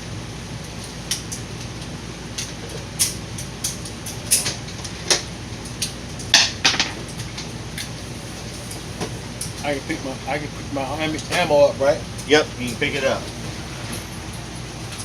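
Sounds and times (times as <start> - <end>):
low ventilation hum: 0.0 - 15.0.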